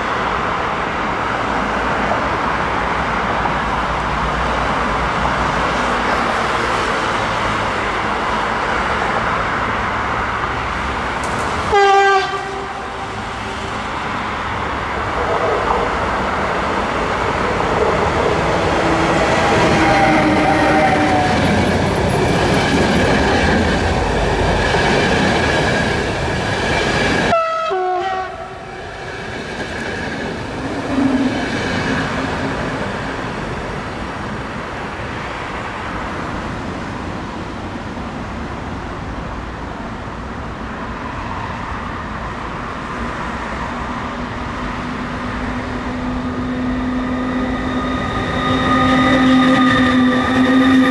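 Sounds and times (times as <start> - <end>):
train passing close: 0.0 - 50.9
train rumbling on track: 0.0 - 50.9
pitched tones: 45.8 - 50.9.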